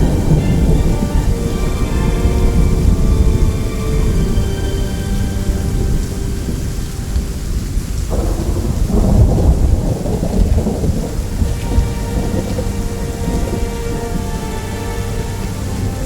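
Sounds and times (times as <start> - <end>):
rolling thunder: 0.0 - 16.0
steady rain: 0.0 - 16.0.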